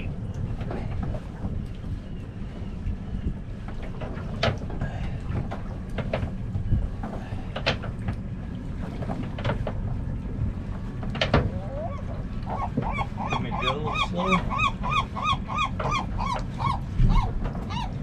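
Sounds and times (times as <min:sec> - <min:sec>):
wind on microphone: 0:00.0 - 0:18.0
boat motor running low: 0:05.2 - 0:18.0.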